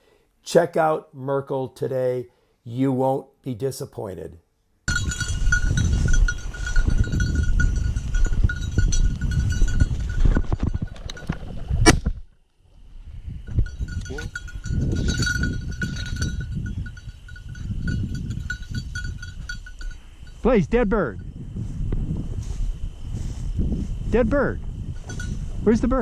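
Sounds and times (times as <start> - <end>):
dog collar bell jingling: 4.9 - 11.4, 13.5 - 20.5, 24.9 - 25.7
wind rumble: 4.9 - 26.0.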